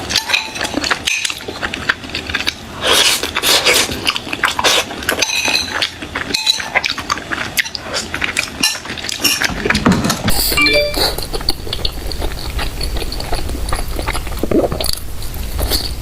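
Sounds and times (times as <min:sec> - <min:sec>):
utensils clinking against dish: 0:00.0 - 0:01.7, 0:04.5 - 0:06.9, 0:07.9 - 0:11.9
eating clicks and crackles: 0:00.0 - 0:16.0.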